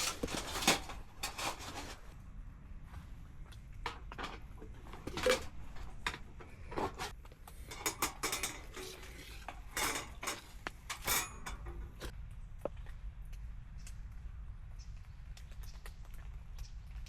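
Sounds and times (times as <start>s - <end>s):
metal parts clinking and clattering: 0.0s - 2.1s, 3.9s - 12.1s.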